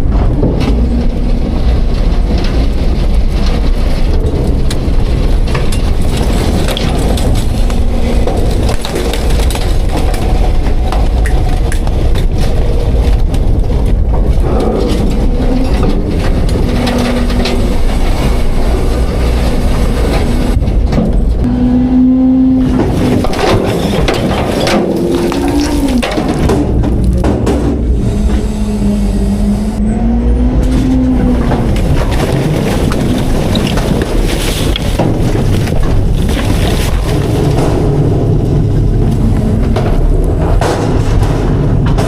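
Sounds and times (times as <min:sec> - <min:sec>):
refuse cracking and crunching: 0:00.0 - 0:21.5, 0:22.3 - 0:29.2, 0:30.2 - 0:42.0
garbage truck engine under load: 0:00.0 - 0:42.0
hydraulic whine: 0:21.2 - 0:32.7.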